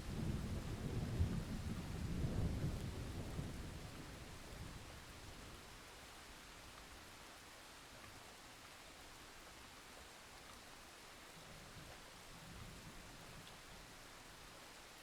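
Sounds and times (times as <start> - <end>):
faint rain hiss: 0.0 - 15.0
low thunder rumble: 0.1 - 4.0.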